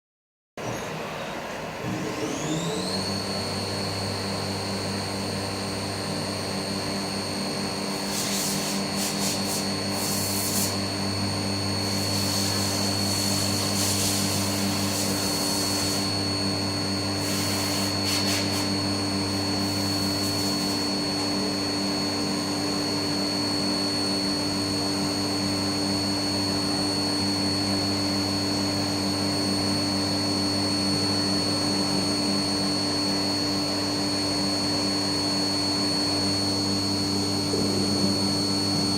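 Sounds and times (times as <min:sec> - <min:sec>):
cnc spindle whine: 0:00.6 - 0:38.9
low machine hum: 0:30.6 - 0:38.9.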